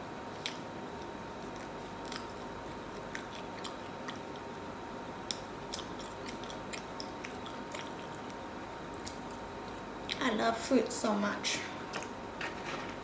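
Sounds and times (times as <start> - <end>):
chewing and eating: 0.3 - 10.2.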